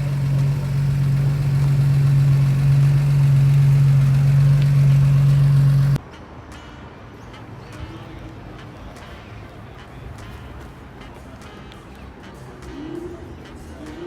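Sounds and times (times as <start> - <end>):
car engine idling: 0.0 - 6.0.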